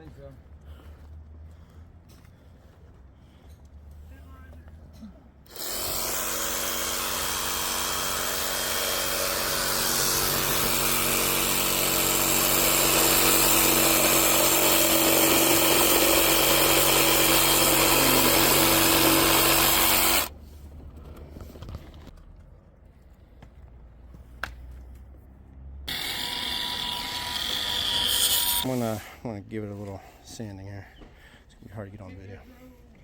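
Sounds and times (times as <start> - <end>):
power saw cutting plastic pipe: 5.5 - 20.3, 25.9 - 29.0.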